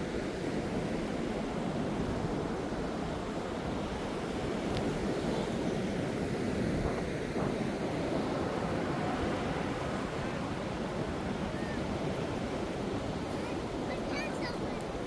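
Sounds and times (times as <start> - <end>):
wind buffeting microphone: 0.1 - 15.0
heavy rain on beach: 8.0 - 15.0.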